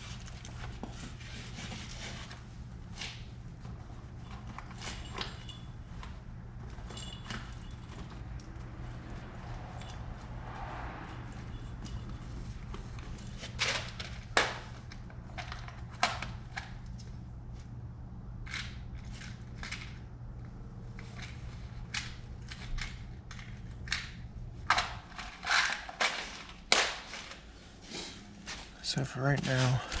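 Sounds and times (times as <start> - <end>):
clicks and rattles of parts: 0.2 - 8.6, 11.8 - 17.7, 18.4 - 27.5.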